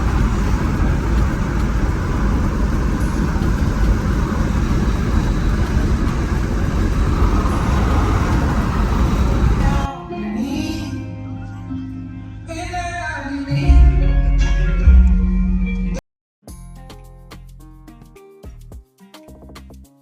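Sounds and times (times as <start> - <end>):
car road and wind rumble: 0.0 - 9.9.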